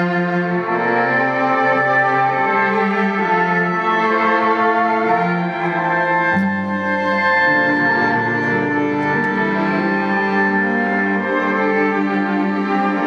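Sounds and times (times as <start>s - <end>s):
looped violin music: 0.0s - 13.0s.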